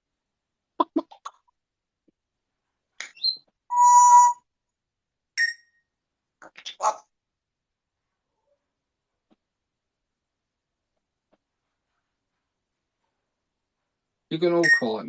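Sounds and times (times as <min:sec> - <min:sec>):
parrot whistling: 0:03.1 - 0:04.4.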